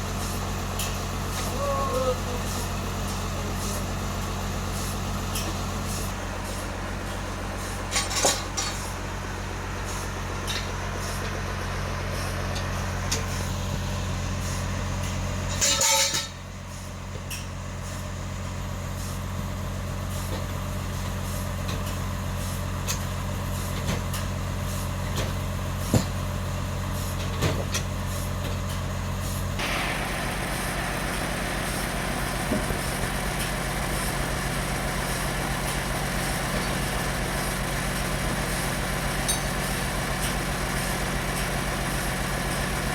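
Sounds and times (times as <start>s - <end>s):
constant machine hum: 0.0s - 42.9s
sawmill engine running: 29.4s - 42.9s.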